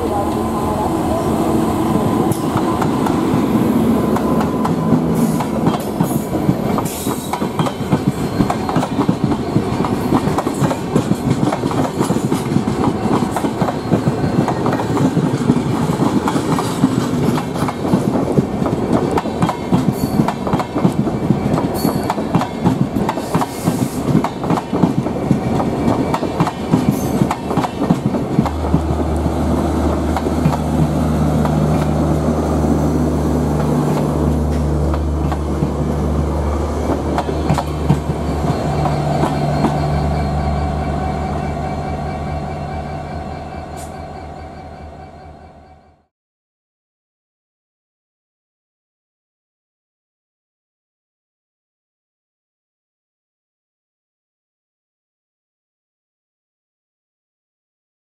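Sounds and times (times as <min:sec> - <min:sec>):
train wheels clickety-clack: 0:04.1 - 0:32.1, 0:33.6 - 0:36.0, 0:36.8 - 0:40.0
rolling wheel-and-rail noise: 0:24.2 - 0:46.0.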